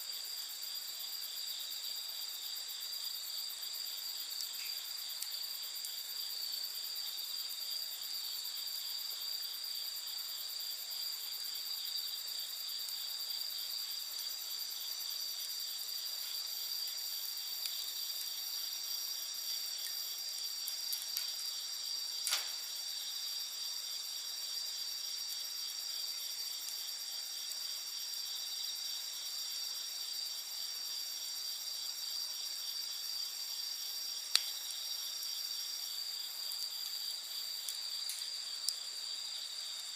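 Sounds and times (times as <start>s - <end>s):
night insects chirring: 0.0s - 39.9s
wood fire crackling: 1.1s - 8.1s, 12.4s - 30.7s, 33.3s - 39.9s.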